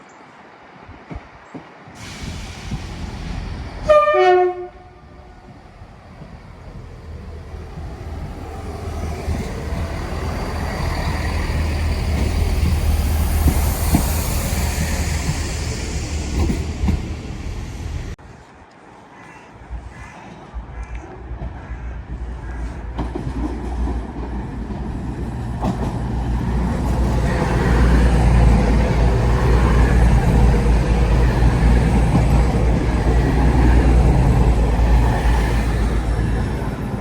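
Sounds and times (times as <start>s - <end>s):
train passing: 0.4s - 18.4s, 20.2s - 37.0s
train horn blast: 3.8s - 5.5s.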